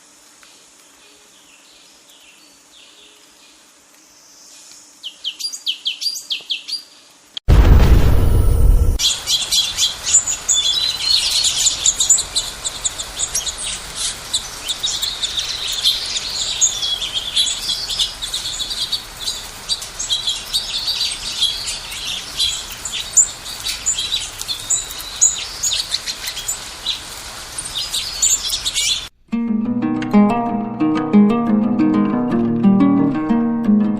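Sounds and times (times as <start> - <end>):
small birds chirping: 0.6 - 7.2, 9.0 - 29.1.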